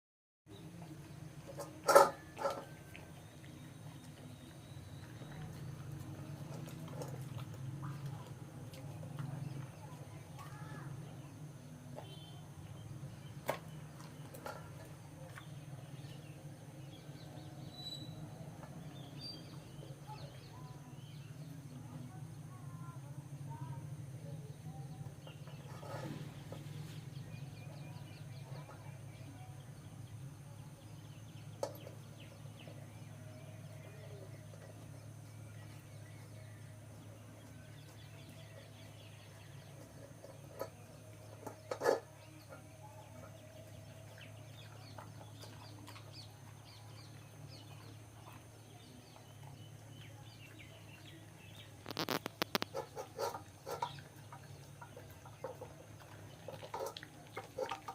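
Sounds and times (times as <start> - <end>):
small birds chirping: 0.5 - 57.9
chickens clucking: 41.4 - 42.7, 51.8 - 57.9.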